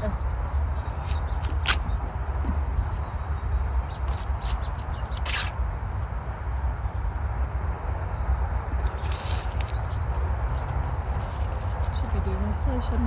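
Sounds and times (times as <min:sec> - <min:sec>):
leaves rustling: 0:00.0 - 0:07.4, 0:08.1 - 0:13.0
corn plants crackling: 0:08.8 - 0:13.0.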